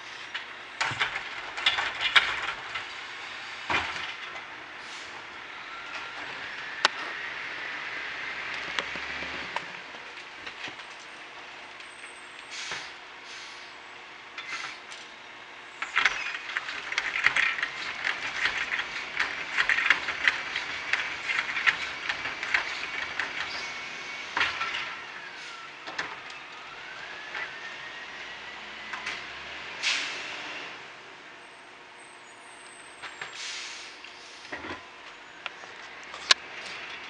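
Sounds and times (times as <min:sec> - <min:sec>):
garbage truck mechanical whine: 0:00.0 - 0:37.0
knocks and clatter: 0:00.8 - 0:02.9, 0:03.7 - 0:04.5, 0:15.8 - 0:23.7, 0:24.3 - 0:25.0.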